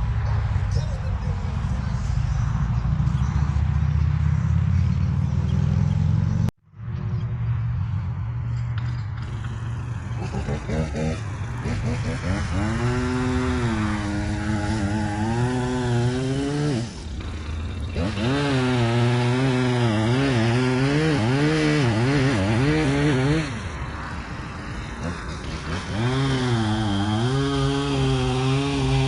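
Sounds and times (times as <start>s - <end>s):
chainsaw running under load: 9.2s - 23.8s, 24.4s - 29.0s.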